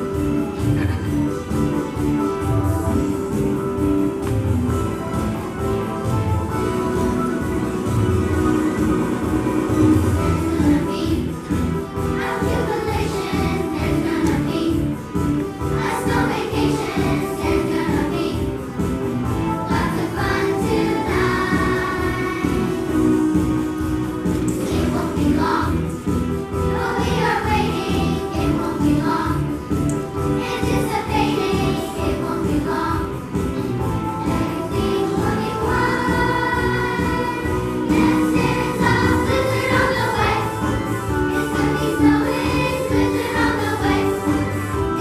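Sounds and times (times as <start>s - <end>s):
choir singing: 6.6s - 15.0s, 15.7s - 18.6s, 19.4s - 23.7s, 24.5s - 26.0s, 26.6s - 29.6s, 30.3s - 33.3s, 33.9s - 45.0s.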